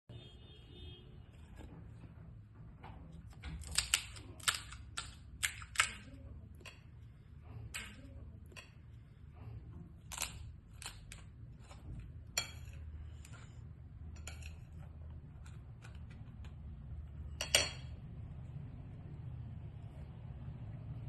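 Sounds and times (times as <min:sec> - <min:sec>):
crisp shells cracking and crunching: 0:03.4 - 0:06.1, 0:10.0 - 0:11.7.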